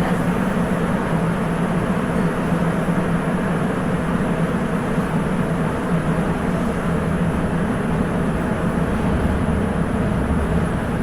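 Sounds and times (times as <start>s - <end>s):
train running noise from inside: 0.0s - 11.0s
low hum: 6.6s - 11.0s.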